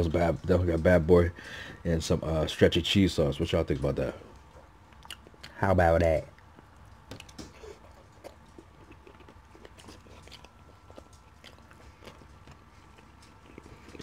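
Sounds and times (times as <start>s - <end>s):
person chewing food: 4.3s - 5.6s, 6.3s - 14.0s
mouth clicks and smacks: 4.9s - 5.6s.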